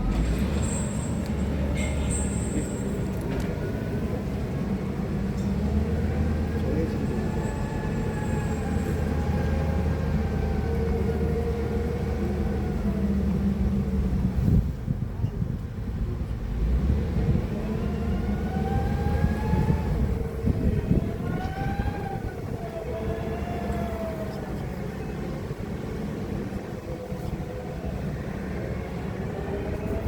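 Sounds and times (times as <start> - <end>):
electric forklift motor whine: 17.2 - 30.0.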